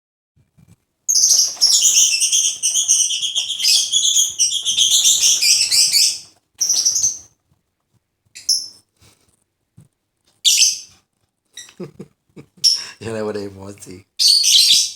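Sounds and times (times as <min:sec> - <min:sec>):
lovebird chirping: 0:01.1 - 0:07.3, 0:08.4 - 0:08.8, 0:10.4 - 0:10.9, 0:11.6 - 0:12.0, 0:12.6 - 0:13.0, 0:14.2 - 0:14.9.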